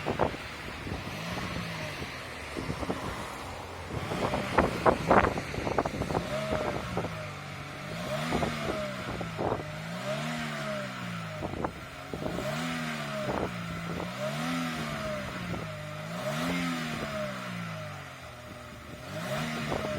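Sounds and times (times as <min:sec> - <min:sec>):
car engine revving: 0:00.0 - 0:19.9.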